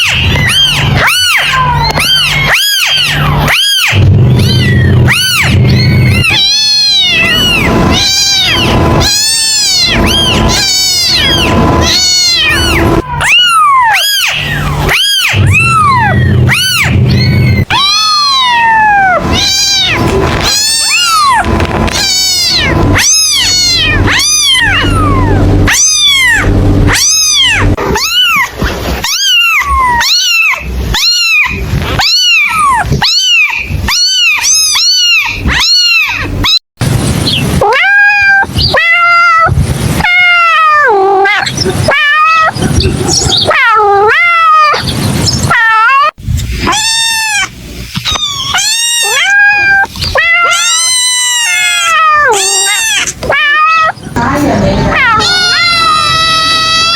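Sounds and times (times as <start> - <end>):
kitten meowing: 0.0 - 36.6, 37.5 - 56.9
low steady hum: 0.3 - 28.0.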